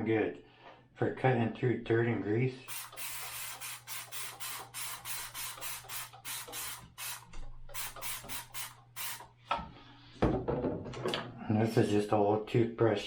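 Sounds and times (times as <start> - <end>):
spray bottle hissing squirts: 2.7 - 9.3.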